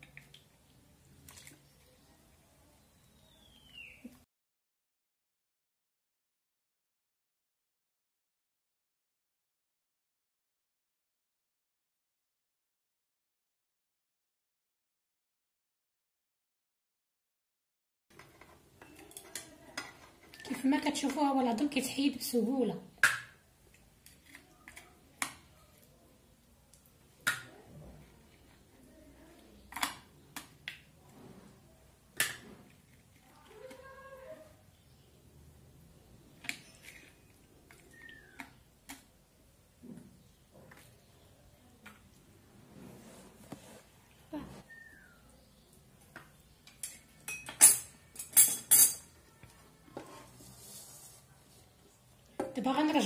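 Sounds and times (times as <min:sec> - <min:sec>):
cutlery clinking on a ceramic plate: 0:46.7 - 0:49.2.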